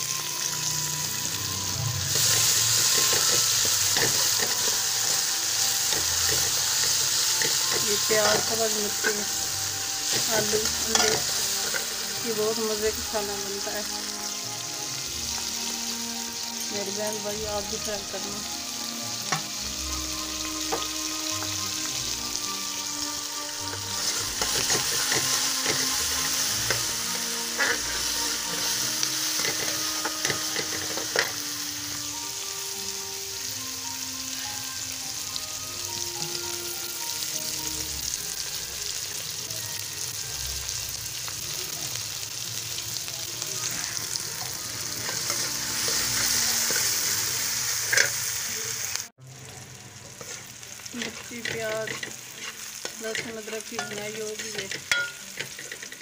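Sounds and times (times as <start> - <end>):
onions sizzling in hot oil: 0.0 - 56.0
metal spoon scraping a pan: 2.1 - 13.7, 23.5 - 32.0, 43.6 - 48.4, 50.0 - 56.0.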